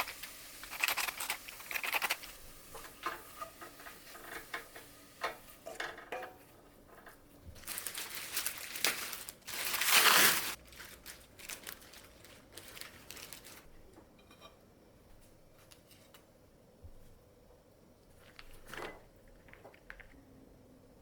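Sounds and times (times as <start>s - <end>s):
crinkling and rustling: 0.0s - 14.1s, 18.0s - 20.3s.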